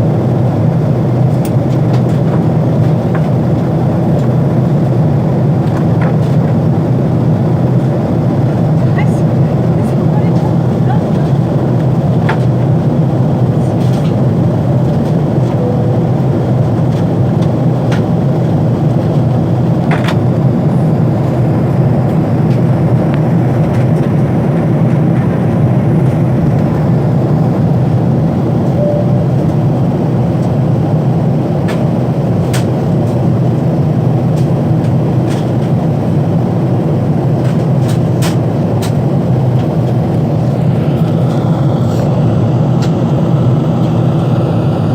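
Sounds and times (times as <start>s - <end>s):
airplane cabin engine rumble: 0.0s - 44.9s.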